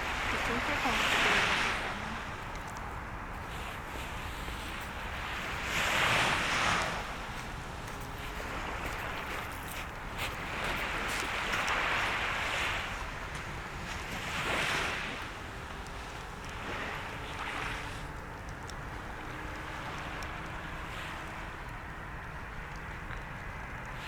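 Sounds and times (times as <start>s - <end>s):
sea waves washing onto shore: 0.0s - 24.0s
bonfire crackling: 15.0s - 24.0s.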